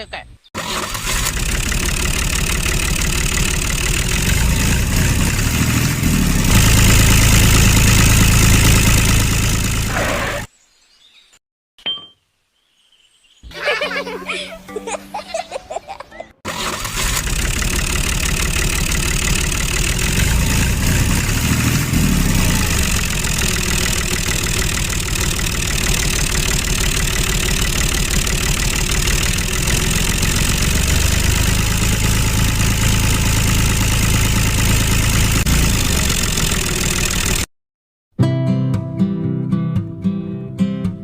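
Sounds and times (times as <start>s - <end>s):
tractor engine idling: 0.6s - 10.3s, 16.5s - 37.5s.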